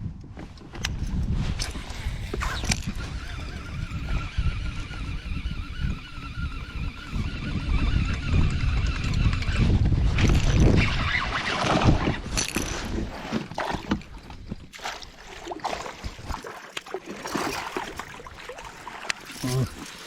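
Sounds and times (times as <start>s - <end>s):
wind buffeting microphone: 0.0s - 14.8s
water splashing against kayak hull: 11.1s - 20.0s.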